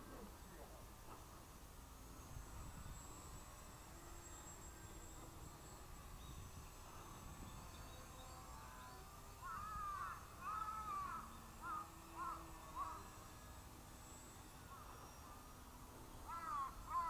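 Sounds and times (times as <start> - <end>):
crow cawing: 9.4 - 13.1, 16.2 - 17.0.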